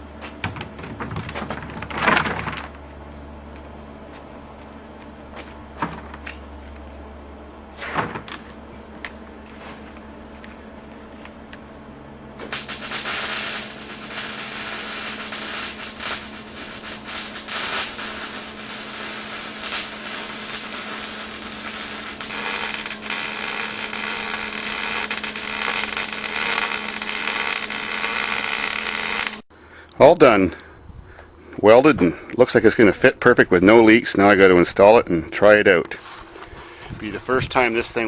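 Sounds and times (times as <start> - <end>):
low steady hum: 0.0 - 38.0
welder arc crackling and sizzling: 12.4 - 29.5.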